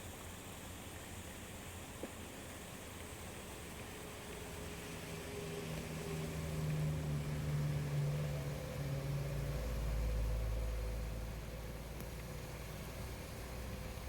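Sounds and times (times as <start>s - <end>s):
vehicle engine running: 3.8s - 14.0s.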